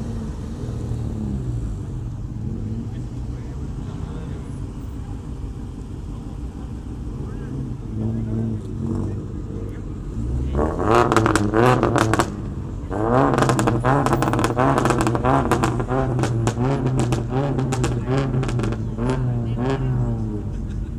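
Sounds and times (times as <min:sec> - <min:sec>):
engine revving over idle: 0:00.0 - 0:20.9
exhaust pops and crackles: 0:06.8 - 0:20.9.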